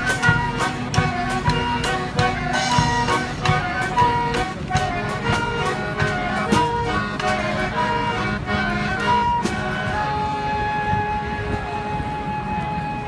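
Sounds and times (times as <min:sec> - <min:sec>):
drum and cymbal hits: 0:00.0 - 0:07.4
horns playing melody: 0:00.0 - 0:13.0.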